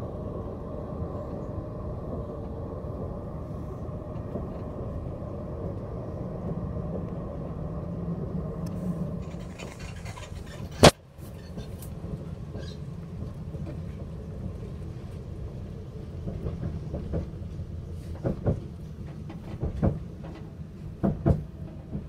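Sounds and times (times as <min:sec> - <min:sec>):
train wheels rumbling on track: 0:00.0 - 0:22.0
wheels clacking over rail joints: 0:09.2 - 0:22.0.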